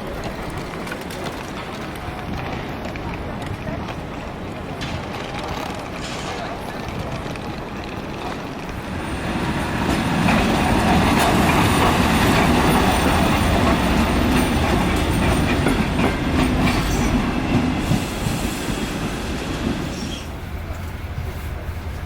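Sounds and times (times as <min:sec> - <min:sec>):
train rumbling on rails: 0:00.0 - 0:22.0
knocks of train wheels: 0:04.7 - 0:20.9.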